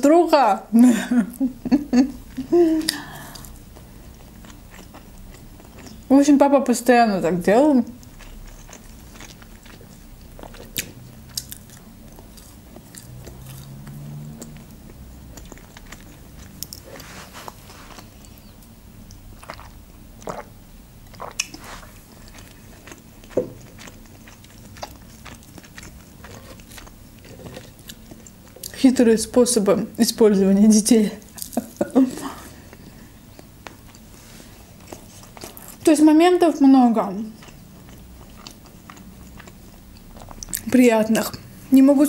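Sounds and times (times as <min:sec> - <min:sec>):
chewing with sharp bites: 0:02.9 - 0:06.1, 0:08.0 - 0:28.8, 0:32.6 - 0:35.9, 0:37.2 - 0:40.7.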